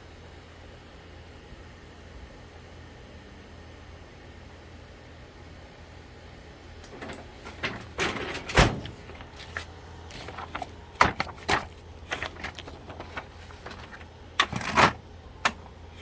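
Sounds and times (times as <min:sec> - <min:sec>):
low steady hum: 0:06.6 - 0:16.0
paper tray sliding: 0:06.9 - 0:15.7.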